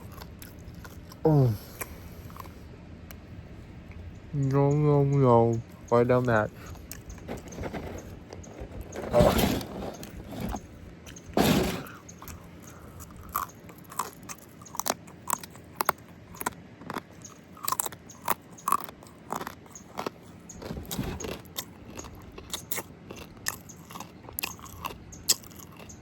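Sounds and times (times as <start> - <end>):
chewing with mouth clicks: 0.0 - 1.2, 1.8 - 3.2, 5.5 - 9.0, 10.0 - 26.0
food crunching: 0.0 - 3.2, 6.1 - 26.0.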